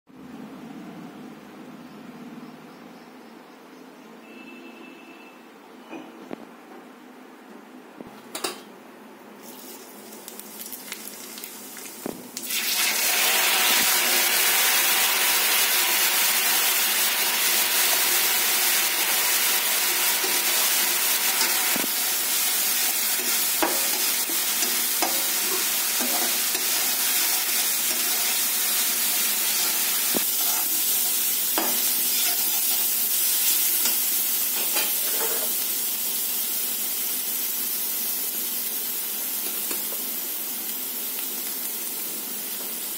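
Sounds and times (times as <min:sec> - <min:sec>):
paste sizzling in hot oil: 0:09.4 - 0:42.9.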